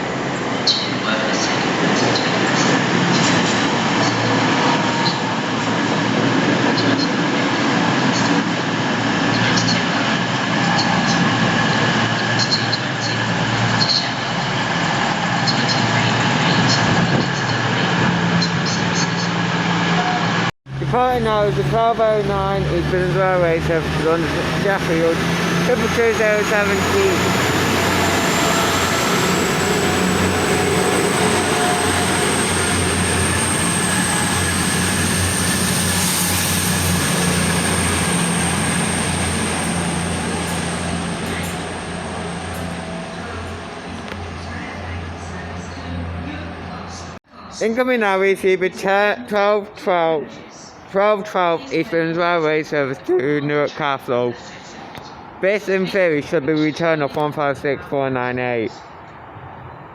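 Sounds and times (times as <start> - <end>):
diesel train engines humming: 0.0 - 47.2
thin high whine: 22.8 - 47.1.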